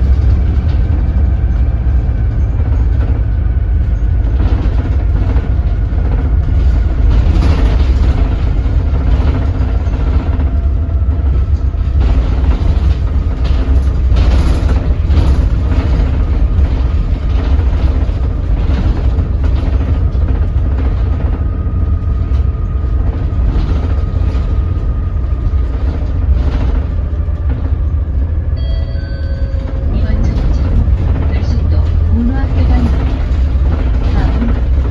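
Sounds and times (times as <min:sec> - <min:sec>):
bus diesel engine rumbling: 0:00.0 - 0:34.9
short electronic beep: 0:28.6 - 0:29.6.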